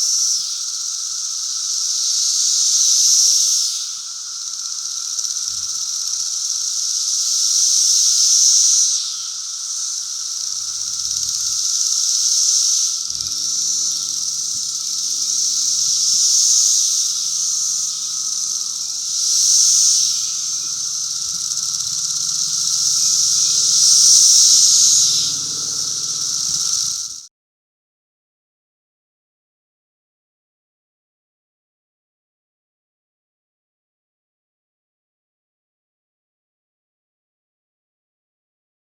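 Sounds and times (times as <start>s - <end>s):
cicadas buzzing in chorus: 0.0s - 27.3s.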